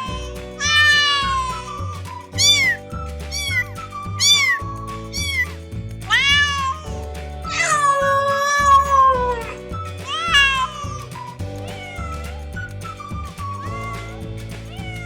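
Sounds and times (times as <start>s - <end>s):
cat meowing: 0.0s - 3.6s, 6.1s - 6.8s, 11.6s - 12.7s, 13.5s - 15.0s
background music with low chords: 0.0s - 15.0s.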